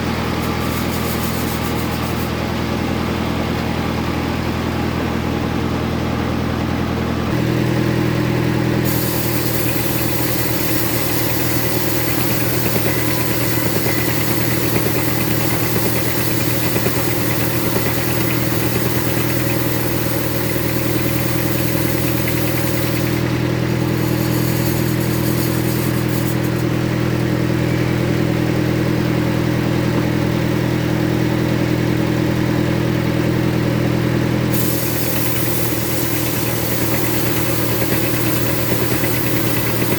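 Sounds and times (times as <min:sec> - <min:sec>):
saw blade hissing through wood: 0:00.0 - 0:02.4, 0:07.3 - 0:27.4, 0:34.5 - 0:39.9
saw motor humming: 0:00.0 - 0:04.0, 0:07.2 - 0:39.9.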